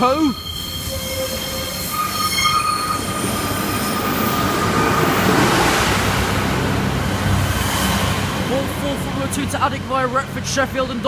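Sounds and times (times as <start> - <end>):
high wheel squeal: 0.0 - 5.7
railbus wheels and engine rumble: 0.0 - 11.0.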